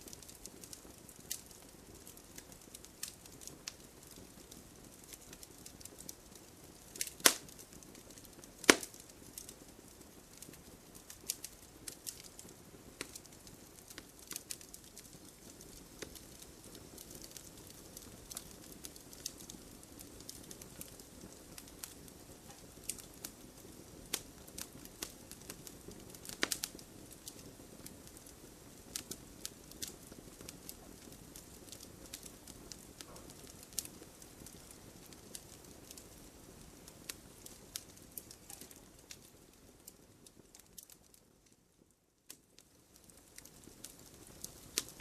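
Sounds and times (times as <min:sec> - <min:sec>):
wood fire crackling and popping: 0:00.0 - 0:45.0.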